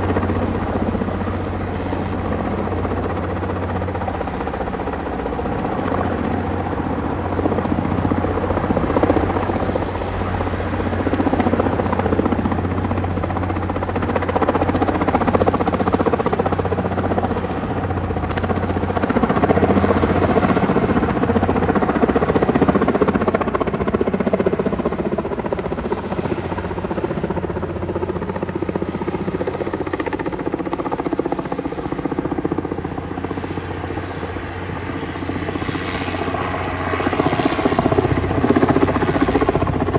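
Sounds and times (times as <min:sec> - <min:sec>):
helicopter engine droning: 0:00.0 - 0:39.9.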